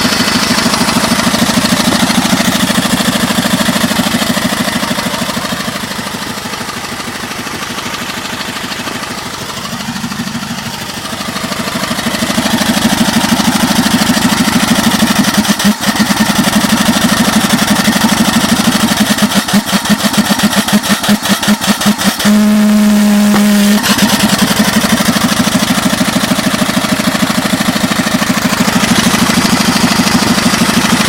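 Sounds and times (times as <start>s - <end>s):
steam engine exhaust beat: 0.0s - 31.0s
sharp knock: 23.2s - 24.0s.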